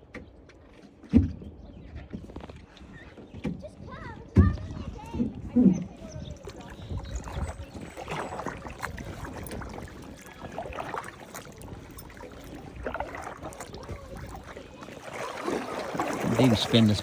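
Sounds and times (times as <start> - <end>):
paddle strokes splashing: 0.0 - 17.0
water lapping around kayak: 0.0 - 17.0.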